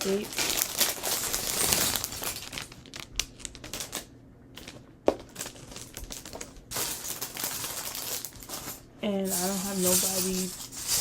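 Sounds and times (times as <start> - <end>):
plastic bag rustling: 0.0 - 11.0.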